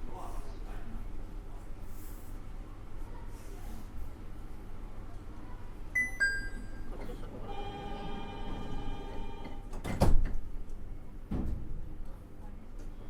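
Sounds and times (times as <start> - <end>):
warning buzzer: 7.5 - 9.6
train doors thudding shut: 8.6 - 10.5.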